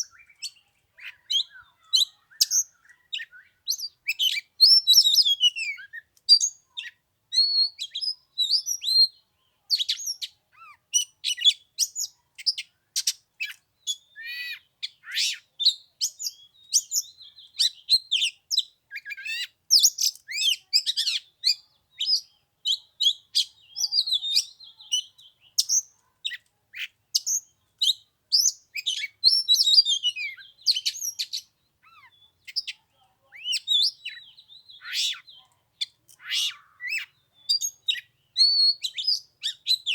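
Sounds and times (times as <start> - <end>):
bird singing whistles and chirps: 0.0 - 32.8, 33.4 - 39.9.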